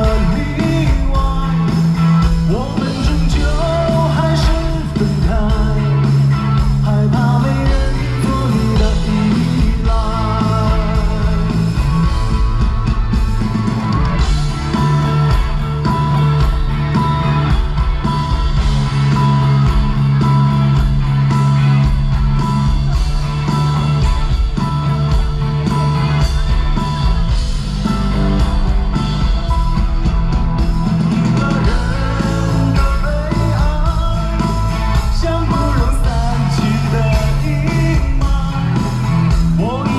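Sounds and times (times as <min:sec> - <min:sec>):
person singing: 0:00.0 - 0:12.1, 0:31.1 - 0:39.9
rock band playing: 0:00.0 - 0:39.9.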